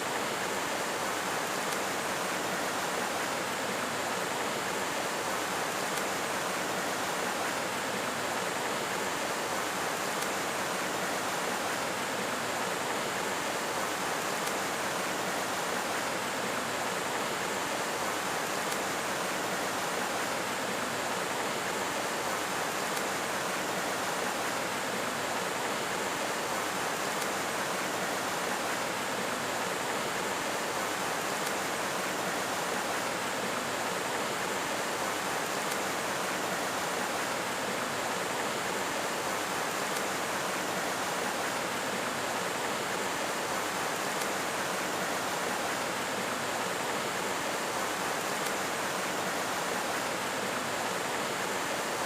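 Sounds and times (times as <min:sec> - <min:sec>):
running water rushing: 0:00.0 - 0:52.0.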